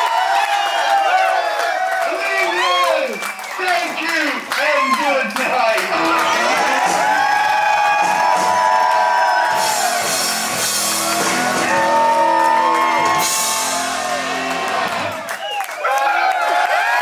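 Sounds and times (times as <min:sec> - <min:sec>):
shouts and whoops: 0:00.0 - 0:03.7, 0:04.5 - 0:05.4, 0:06.0 - 0:10.2, 0:11.0 - 0:17.0
heavy metal band playing: 0:05.9 - 0:15.2.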